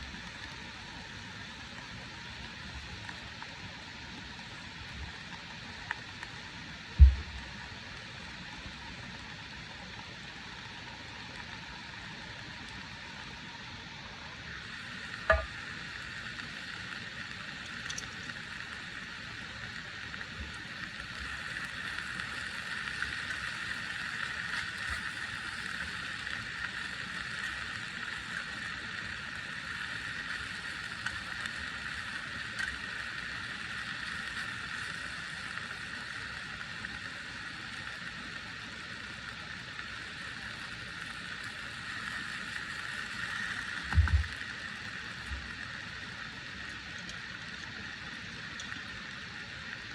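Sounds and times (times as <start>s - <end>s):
steady rain: 0.0s - 49.9s
sharp knock: 15.3s - 15.5s.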